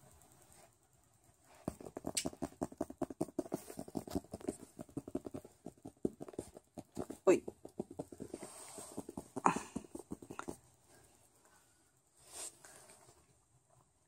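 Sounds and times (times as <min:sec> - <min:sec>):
rapid light tapping: 0:01.4 - 0:10.7.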